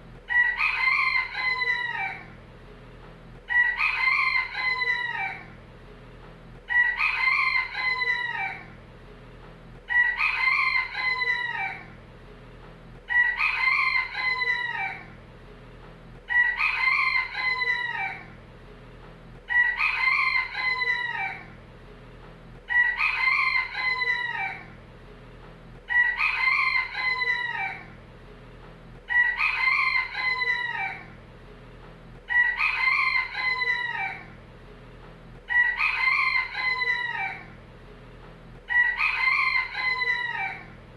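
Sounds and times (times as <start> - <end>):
rooster crowing: 0.3 - 2.4, 3.5 - 5.6, 6.7 - 8.8, 9.9 - 12.0, 13.1 - 15.2, 16.3 - 18.4, 19.5 - 21.6, 22.7 - 24.8, 25.9 - 28.0, 29.1 - 31.2, 32.3 - 34.4, 35.5 - 37.6, 38.7 - 40.8.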